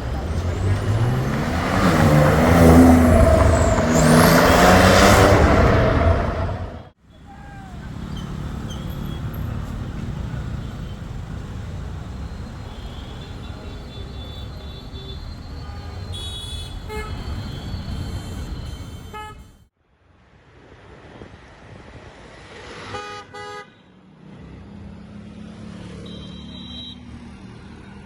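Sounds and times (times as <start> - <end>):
vehicle engines running: 0.0 - 19.6
road rumble: 0.0 - 28.0
car horn toots: 12.6 - 19.6, 26.0 - 27.0.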